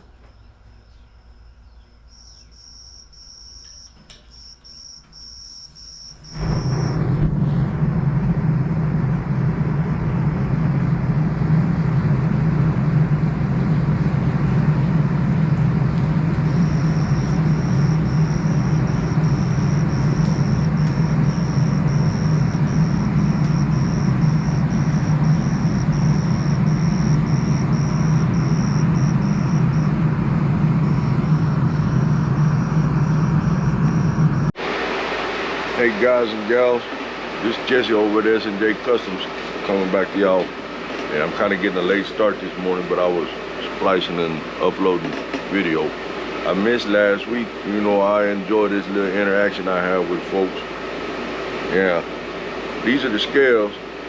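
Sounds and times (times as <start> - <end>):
insect chirping trill: 0.0 - 7.1, 14.7 - 34.5
loud machine running: 6.2 - 54.0.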